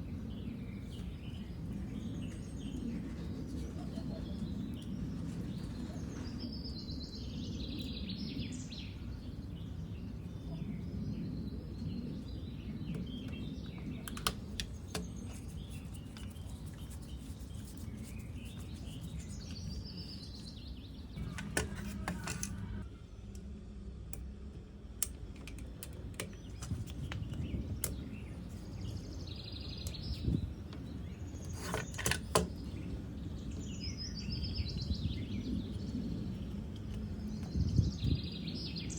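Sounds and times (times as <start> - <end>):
birds chirping: 0.0 - 23.5, 25.0 - 38.9.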